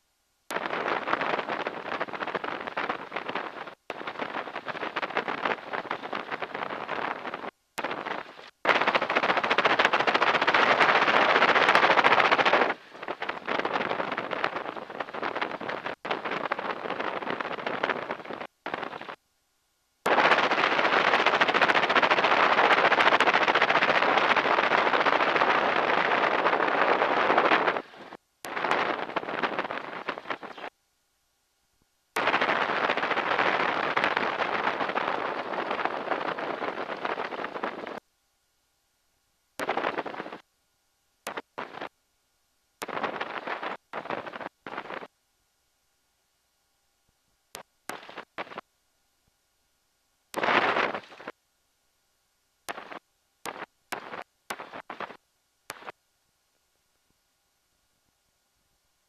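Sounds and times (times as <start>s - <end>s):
wind on microphone: 0.5s - 19.2s, 20.1s - 30.7s, 32.2s - 38.0s, 39.6s - 40.4s, 41.3s - 41.9s, 42.8s - 45.1s, 50.4s - 51.3s
wind: 32.1s - 38.2s.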